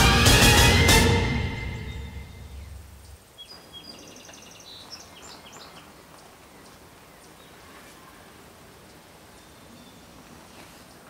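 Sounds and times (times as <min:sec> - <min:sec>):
bird chirping high notes: 0:00.0 - 0:04.1.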